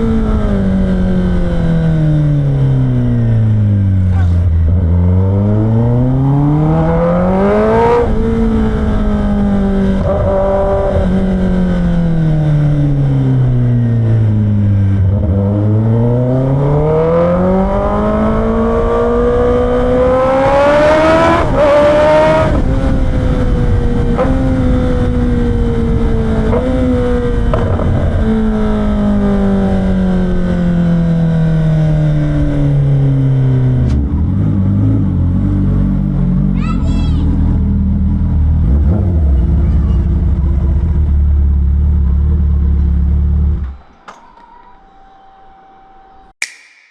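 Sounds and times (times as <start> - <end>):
motorcycle engine revving: 0.0 - 36.6, 37.2 - 43.9.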